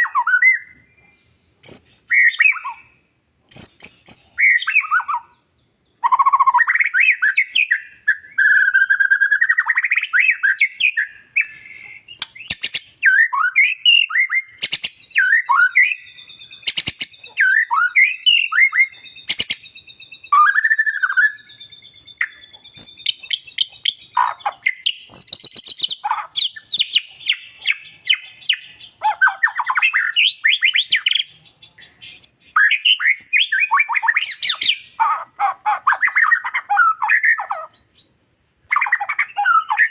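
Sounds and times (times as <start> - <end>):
bird singing whistled phrases: 0.0 - 39.9
sharp bird clicks: 1.6 - 2.8, 3.5 - 5.2, 9.4 - 15.6, 16.2 - 38.1.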